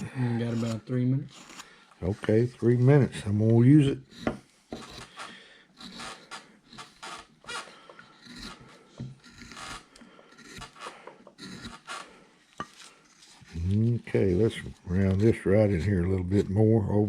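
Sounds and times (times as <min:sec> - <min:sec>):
carving tool scraping wood: 0:00.0 - 0:17.0.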